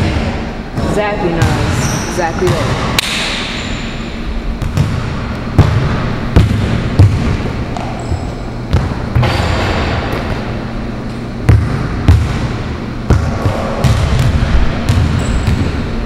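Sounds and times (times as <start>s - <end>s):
basketball bouncing on hard court: 4.6s - 10.4s, 11.5s - 12.5s, 13.1s - 15.8s.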